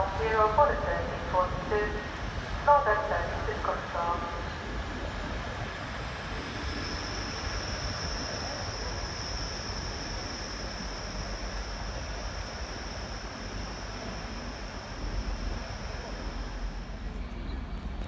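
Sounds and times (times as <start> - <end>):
diesel train rumbling: 0.0 - 18.0
high-pitched whine: 0.0 - 18.0.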